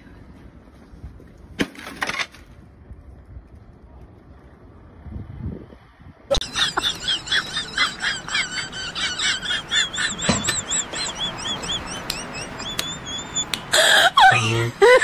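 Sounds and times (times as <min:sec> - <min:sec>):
small birds chirping: 0:08.8 - 0:13.7.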